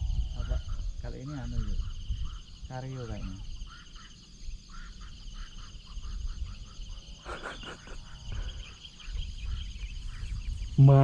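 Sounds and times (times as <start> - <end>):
insects trilling: 0.0 - 11.0
short insect calls: 0.0 - 11.0.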